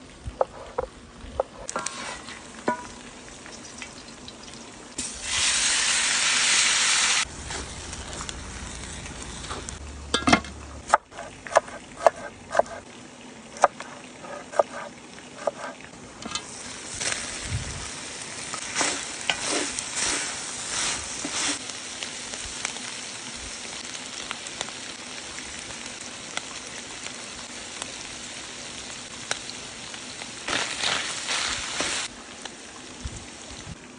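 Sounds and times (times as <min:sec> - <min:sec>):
food sizzling in a pan: 0:00.0 - 0:10.0, 0:11.1 - 0:33.9
loud hiss: 0:05.0 - 0:09.7.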